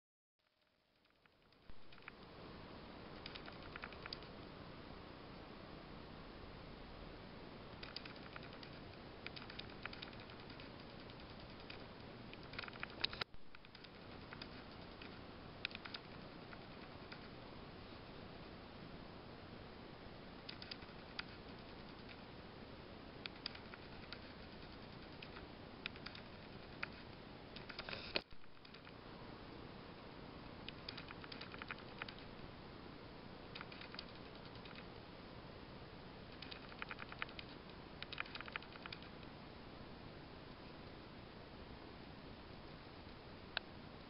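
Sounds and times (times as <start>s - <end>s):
faint light clicks and ticks: 0.4s - 2.3s, 3.2s - 4.4s, 7.7s - 17.4s, 20.4s - 22.3s, 23.2s - 29.0s, 30.4s - 32.3s, 33.5s - 34.9s, 36.3s - 39.4s
steady hiss: 0.5s - 44.0s.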